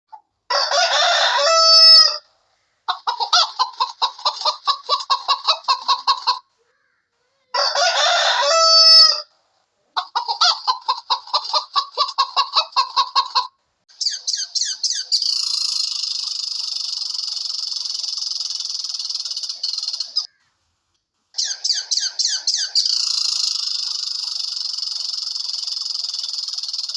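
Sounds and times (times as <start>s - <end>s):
hen clucking: 0.1s - 6.6s, 10.0s - 20.4s, 21.4s - 26.9s
rooster crowing: 0.5s - 2.3s, 7.5s - 9.3s
high-pitched chirring: 14.1s - 20.3s, 21.4s - 26.9s.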